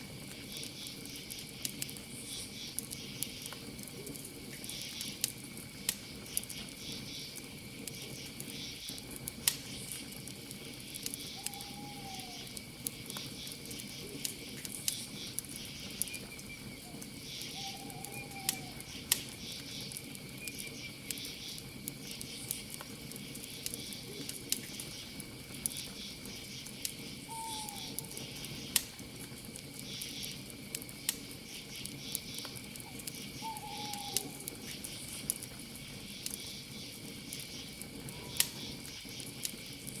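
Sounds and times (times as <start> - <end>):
campfire crackling and popping: 0.0 - 40.0
crickets chirping: 0.0 - 40.0
insect trill: 4.6 - 40.0
owl hooting: 11.4 - 12.5, 16.8 - 18.9, 27.3 - 28.2, 33.4 - 34.5.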